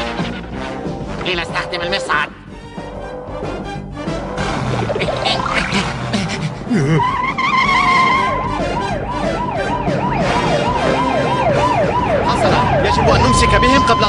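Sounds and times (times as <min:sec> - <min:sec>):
cartoon police siren yelping: 0:07.0 - 0:14.0.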